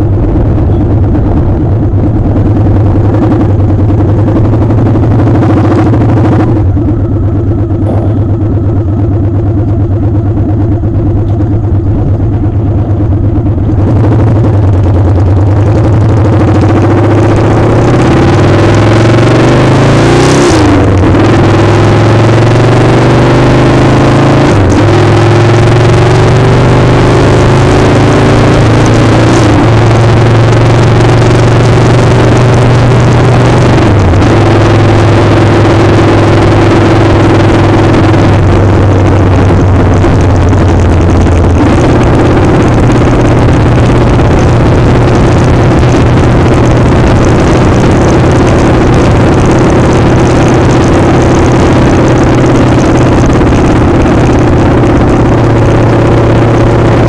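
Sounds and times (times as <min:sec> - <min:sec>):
wind noise on microphone: 0:00.0 - 0:08.4, 0:28.9 - 0:57.0
motorcycle engine running: 0:00.0 - 0:57.0.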